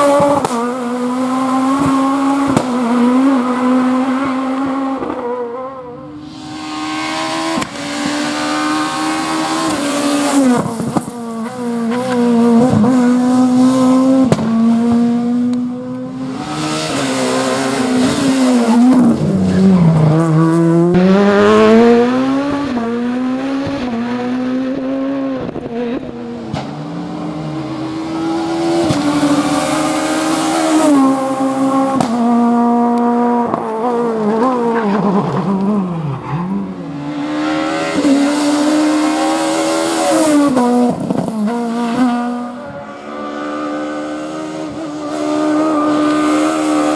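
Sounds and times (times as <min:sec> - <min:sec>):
high-revving rally car engine: 0:00.0 - 0:46.9
sharp cracks: 0:32.0 - 0:33.7.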